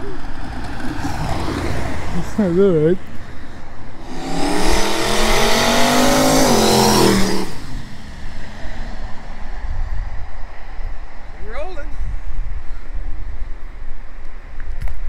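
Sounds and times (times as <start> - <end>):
car engine accelerating: 3.8 - 9.6.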